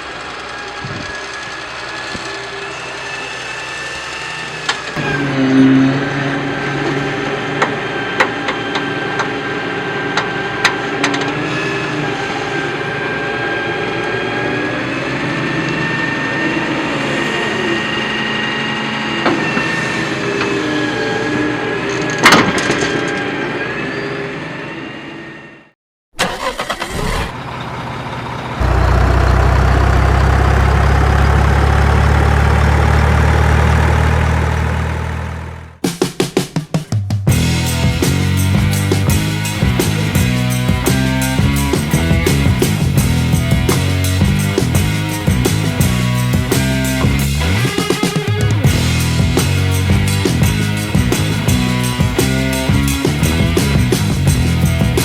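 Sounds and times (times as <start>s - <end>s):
small motor whining: 0.0s - 9.0s
low steady engine: 0.0s - 21.4s, 26.9s - 35.8s.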